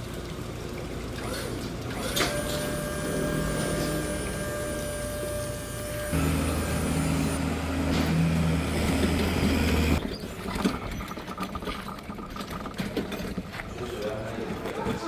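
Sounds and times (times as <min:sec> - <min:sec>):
low machine hum: 0:01.8 - 0:10.2.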